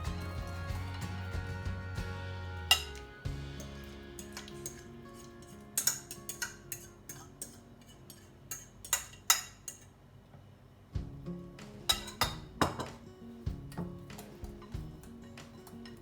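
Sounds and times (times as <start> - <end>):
soft background music: 0.0 - 8.0, 11.0 - 16.0
utensils clinking against dishes: 2.6 - 10.0, 11.8 - 13.0, 13.7 - 16.0.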